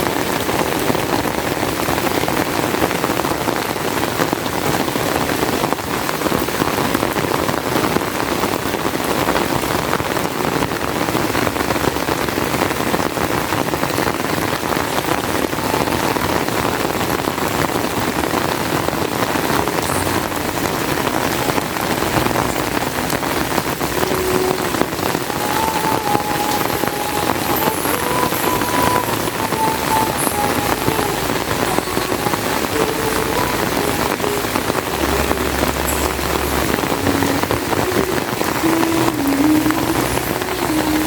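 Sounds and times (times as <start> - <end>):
heavy rain falling: 0.0 - 41.0.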